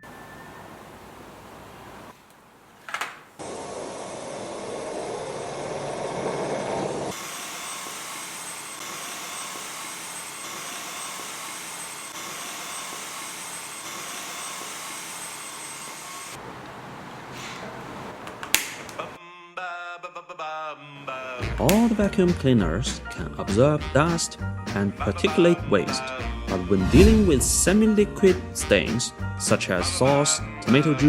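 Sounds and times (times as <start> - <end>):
stick vacuum cleaner running: 0.0 - 19.2.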